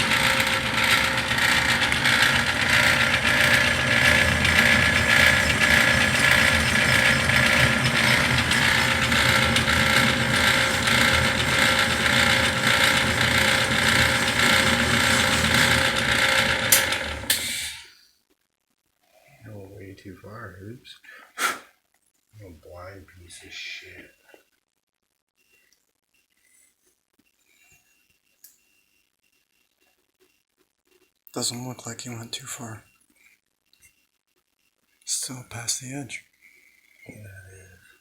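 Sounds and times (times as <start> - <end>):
metal lathe gear clatter: 0.0 - 17.8.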